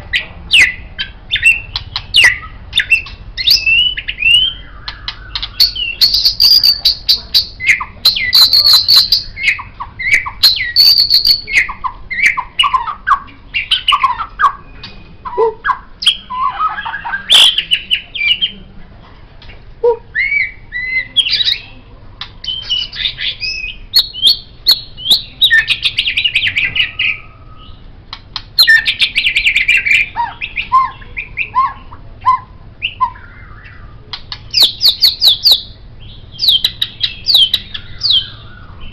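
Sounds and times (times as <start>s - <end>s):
bird singing whistled phrases: 0.5s - 18.6s, 19.8s - 21.7s, 22.4s - 27.8s, 28.6s - 38.9s
bird sharp clicking notes: 4.8s - 7.0s, 34.1s - 35.5s.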